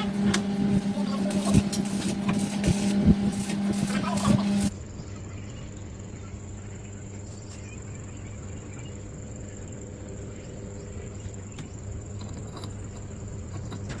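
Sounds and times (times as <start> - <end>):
machine motor humming: 0.0 - 5.4.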